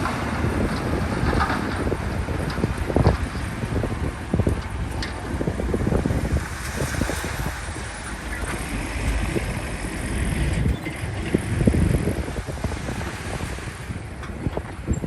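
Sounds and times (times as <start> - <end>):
heavy vehicle engine running: 0.0 - 15.0
wind buffeting microphone: 0.0 - 15.0.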